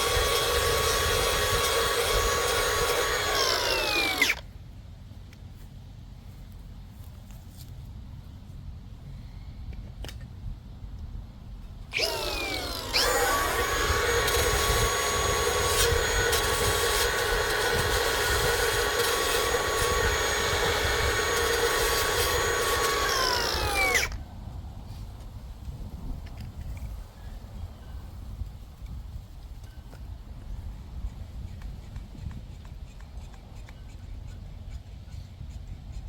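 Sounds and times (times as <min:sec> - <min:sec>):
electric power tool spinning: 0:00.0 - 0:04.5, 0:11.8 - 0:24.2.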